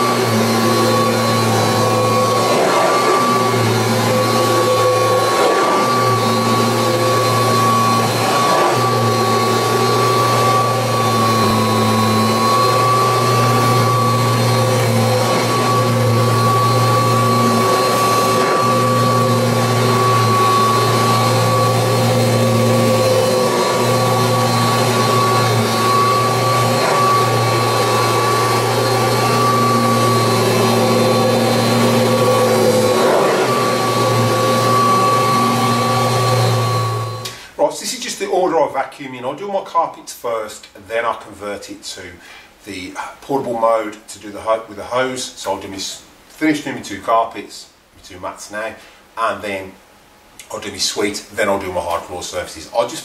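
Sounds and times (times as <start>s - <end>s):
vacuum cleaner running on carpet: 0.0s - 37.4s.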